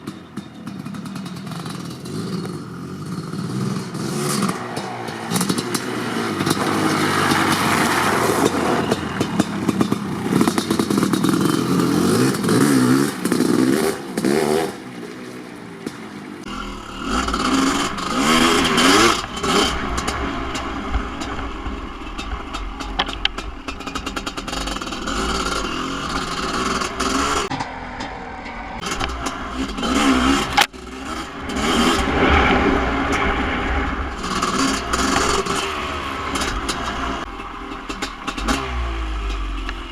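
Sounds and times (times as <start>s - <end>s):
two-stroke motorcycle engine revving: 0.0s - 15.0s, 16.4s - 39.9s
steady low rumble: 16.4s - 39.6s.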